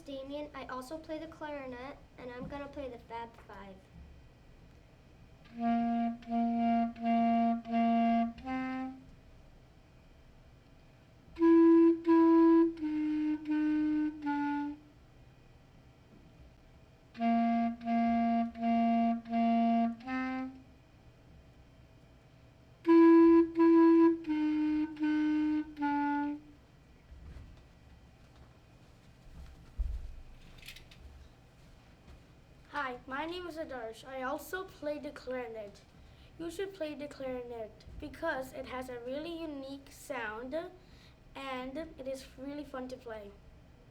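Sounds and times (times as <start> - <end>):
solo clarinet tune: 5.5 - 9.1, 11.3 - 15.0, 17.1 - 20.7, 22.8 - 26.6.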